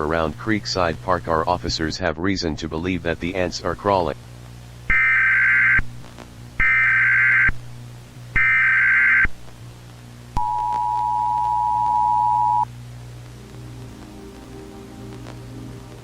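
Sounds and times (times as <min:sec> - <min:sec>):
low hum: 0:00.0 - 0:16.0
buzzy data bursts: 0:03.0 - 0:09.5.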